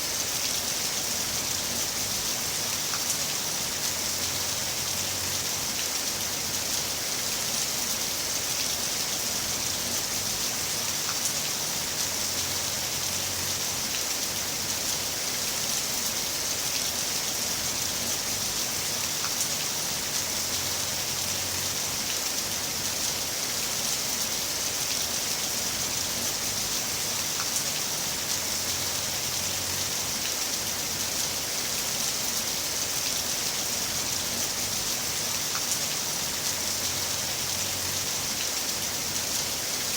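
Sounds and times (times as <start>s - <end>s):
heavy rain falling: 0.0s - 39.9s
raindrops ticking: 8.5s - 16.1s, 17.4s - 22.3s, 33.3s - 39.4s.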